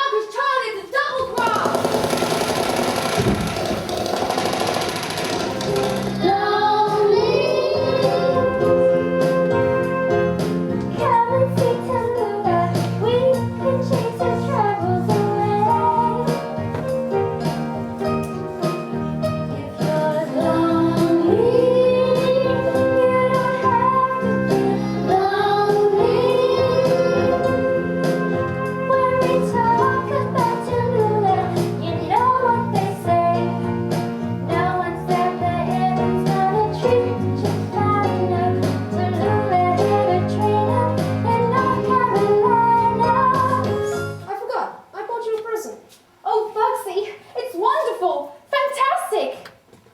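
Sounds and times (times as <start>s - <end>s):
girl singing: 0.0s - 1.8s, 6.2s - 10.1s, 10.9s - 16.5s, 19.4s - 33.7s, 34.5s - 44.0s
instrumental accompaniment: 1.4s - 44.3s.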